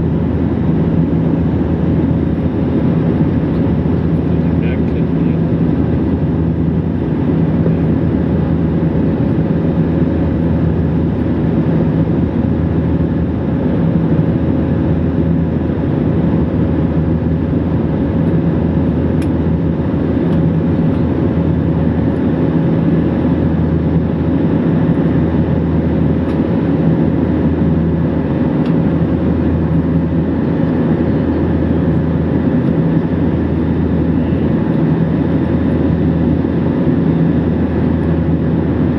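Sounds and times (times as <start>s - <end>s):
airliner cabin drone: 0.0s - 38.9s
low hum: 0.0s - 38.9s.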